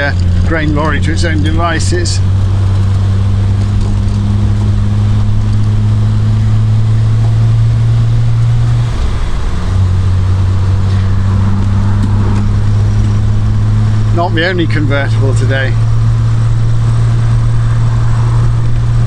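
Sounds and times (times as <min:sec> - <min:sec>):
car engine running: 0:08.4 - 0:11.1.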